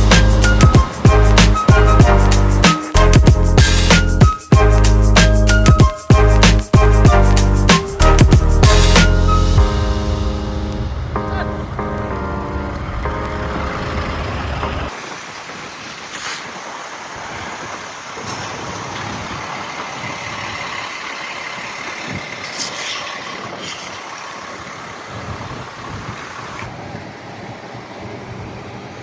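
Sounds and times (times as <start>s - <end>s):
freeway traffic noise: 0.0s - 4.9s, 7.0s - 29.0s
music: 0.0s - 14.9s
brief high hisses: 16.0s - 16.7s, 22.4s - 24.2s.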